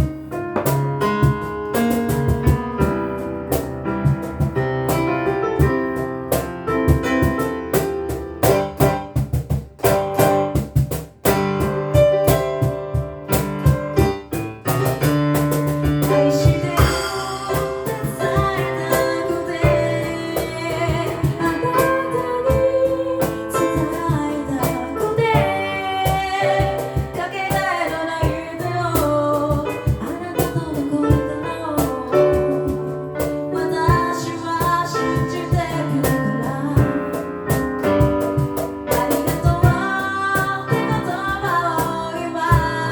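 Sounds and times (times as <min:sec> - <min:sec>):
vocal percussion beats: 0:09.8 - 0:42.9
a cappella group singing: 0:16.6 - 0:23.8.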